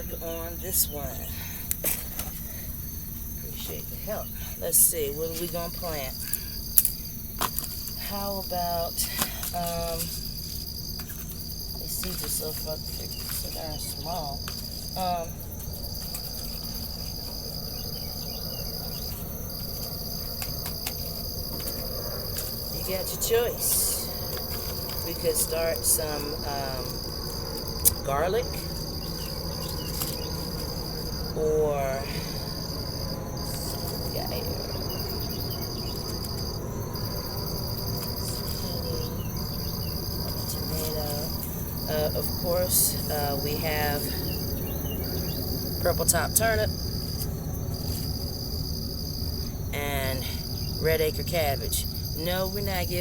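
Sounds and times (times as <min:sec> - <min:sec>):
crickets trilling: 0:00.0 - 0:53.0
faint ticks: 0:06.2 - 0:08.1.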